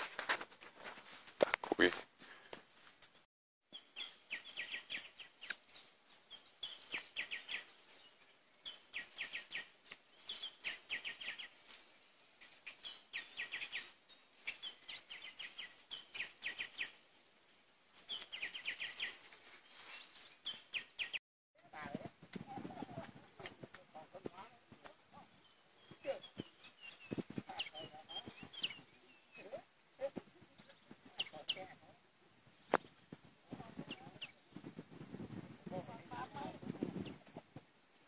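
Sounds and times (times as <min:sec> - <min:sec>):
bird singing: 0:03.7 - 0:17.2, 0:17.9 - 0:21.2, 0:25.2 - 0:29.7.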